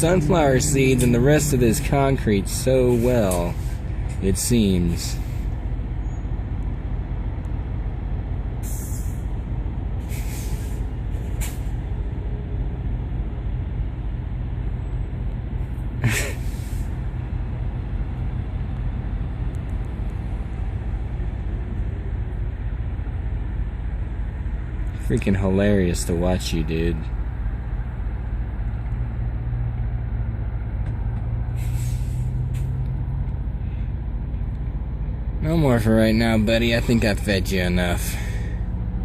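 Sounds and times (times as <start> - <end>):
diesel truck engines idling: 0.0 - 39.0
air brakes hissing: 2.9 - 4.2, 5.0 - 6.2, 8.6 - 9.3, 10.0 - 11.8, 16.1 - 17.0, 31.5 - 32.8, 38.0 - 38.8.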